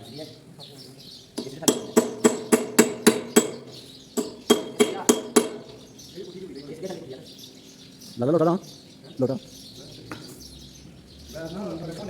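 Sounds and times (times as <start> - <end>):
hammer striking metal: 1.4 - 5.9.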